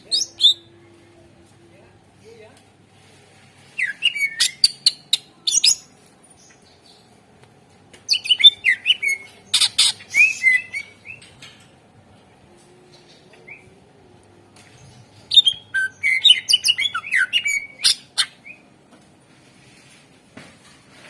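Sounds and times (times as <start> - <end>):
bird singing whistled notes: 3.8 - 5.0, 8.1 - 11.3, 15.3 - 18.6.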